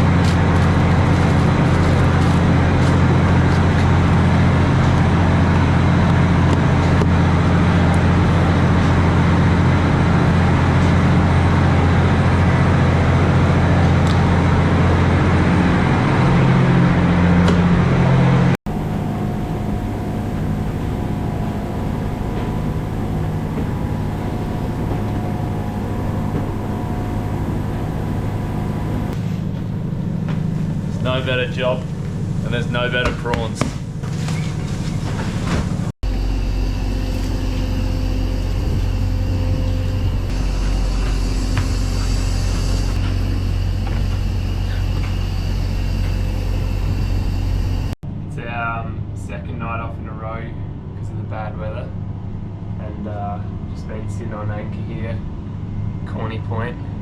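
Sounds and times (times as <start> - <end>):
boat engine drone: 0.0 - 48.3
machinery hum: 0.0 - 57.0
faint high whine: 18.7 - 29.4, 36.0 - 48.0.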